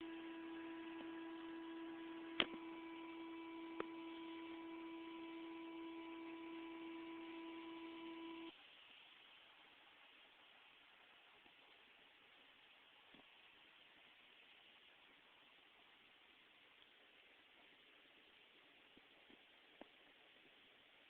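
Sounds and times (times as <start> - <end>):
electrical hum: 0.0 - 8.6
hiss: 8.5 - 21.0.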